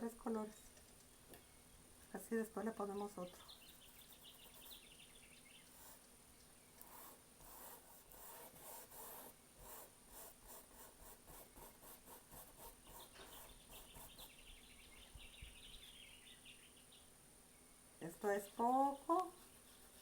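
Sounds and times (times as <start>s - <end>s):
paintbrush strokes: 3.5s - 5.0s, 5.7s - 6.1s, 6.8s - 14.3s, 19.1s - 20.0s.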